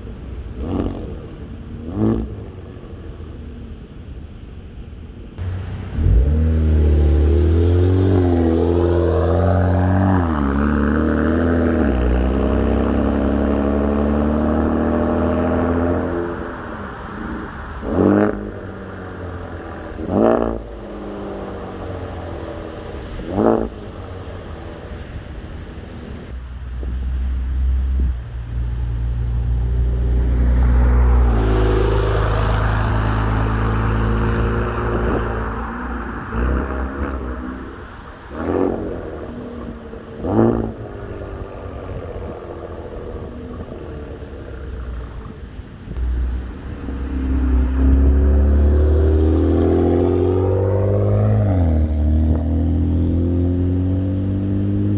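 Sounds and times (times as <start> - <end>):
car engine revving: 5.4 - 24.4, 26.8 - 37.7, 45.8 - 54.9.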